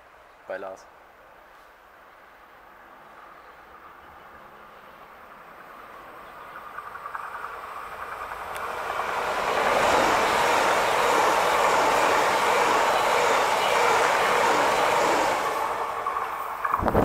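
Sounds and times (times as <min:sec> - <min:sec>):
faint train whine: 0:00.0 - 0:17.0
train passing wheel-on-rail noise: 0:01.0 - 0:17.0
rapid ticks: 0:06.5 - 0:08.8.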